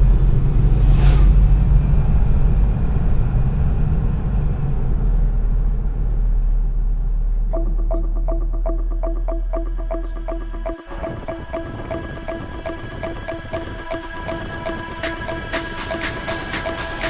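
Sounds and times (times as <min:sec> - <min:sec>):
vehicle rumbling in traffic: 0:00.0 - 0:11.1
music with repeating beat: 0:07.5 - 0:17.0.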